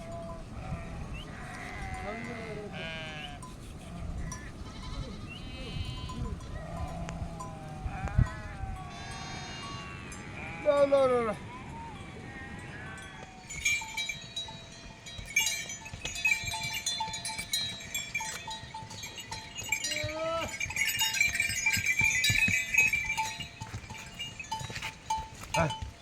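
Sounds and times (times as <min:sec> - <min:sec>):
animal bleating: 0:00.0 - 0:11.4, 0:12.1 - 0:13.5, 0:19.7 - 0:20.6, 0:24.8 - 0:25.8
animal bells clinking: 0:00.0 - 0:26.0.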